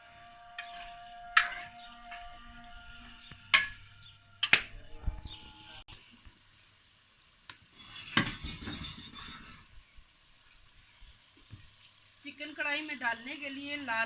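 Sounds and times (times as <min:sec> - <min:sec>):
chicken sizzling: 0:00.0 - 0:14.0
metal spoon clinking and scraping: 0:07.8 - 0:09.7.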